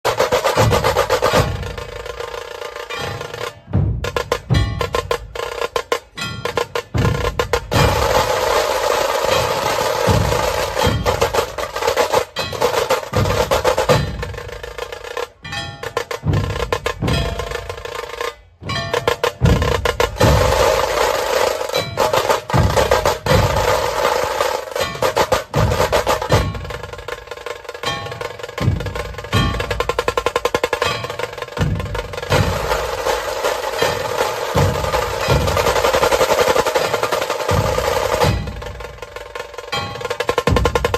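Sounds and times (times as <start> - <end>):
fast drum beats: 0.0 - 40.9.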